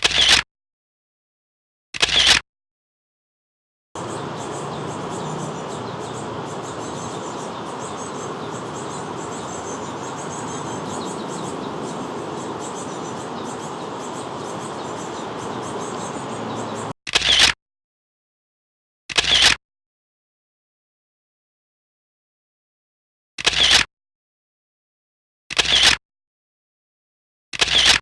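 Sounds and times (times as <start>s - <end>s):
high insect chirring: 4.0s - 16.9s
rushing outdoor haze: 4.0s - 16.9s.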